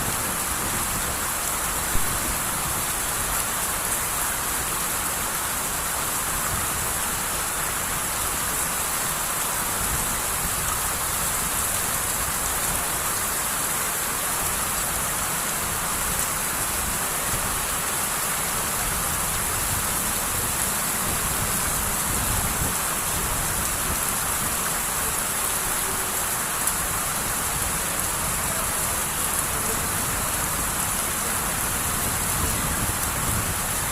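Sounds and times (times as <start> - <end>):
heavy rain hissing: 0.0 - 33.9.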